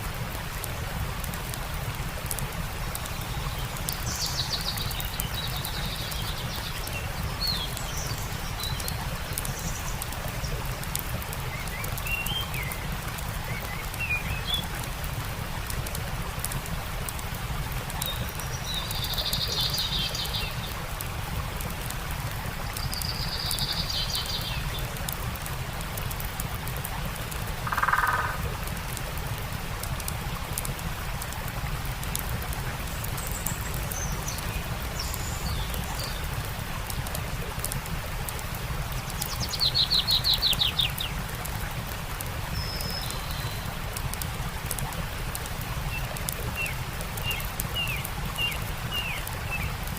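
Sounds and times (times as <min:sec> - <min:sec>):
campfire crackling: 0:00.0 - 0:49.9
stream rushing: 0:00.0 - 0:49.9
birds calling: 0:27.6 - 0:28.5.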